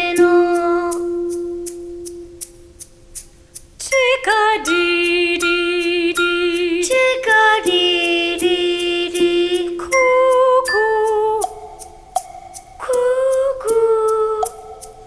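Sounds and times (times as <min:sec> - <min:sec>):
woman singing: 0:00.0 - 0:01.6, 0:03.8 - 0:11.8, 0:12.8 - 0:15.0
light ticks: 0:00.0 - 0:15.0.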